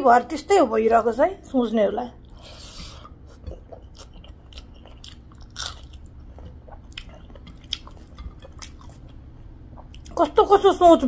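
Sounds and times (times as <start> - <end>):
person chewing food: 2.2 - 10.2.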